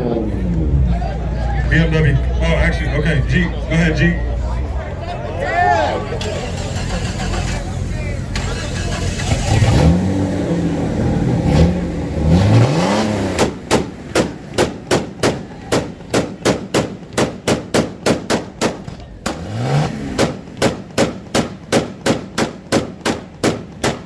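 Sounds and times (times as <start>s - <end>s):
sharp exhaust cracks: 6.0s - 24.0s
engine revving: 6.2s - 15.4s, 18.7s - 24.0s.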